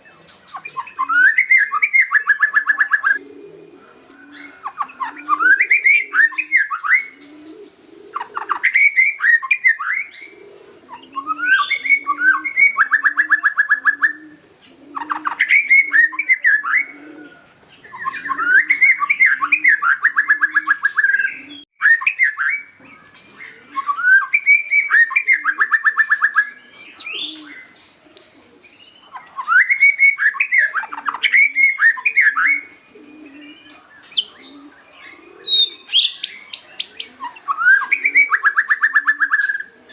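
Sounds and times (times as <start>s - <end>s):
bird singing whistles and trills: 0.0s - 39.9s
low cooing: 2.6s - 9.0s, 10.0s - 21.6s, 23.4s - 24.2s, 26.5s - 29.4s, 30.7s - 39.9s.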